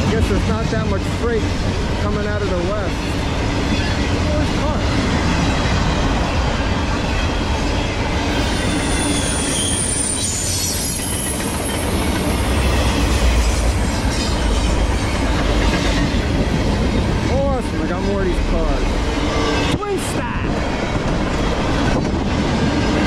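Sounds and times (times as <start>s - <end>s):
freight train wheels rumbling: 0.0s - 23.0s
high wheel squeal: 7.0s - 15.3s.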